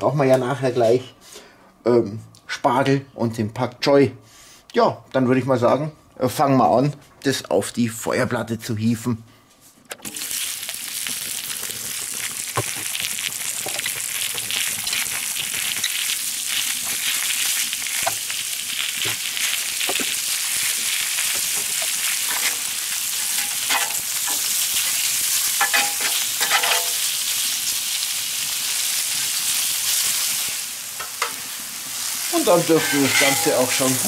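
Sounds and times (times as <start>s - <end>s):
food sizzling on a hot plate: 10.1s - 34.0s.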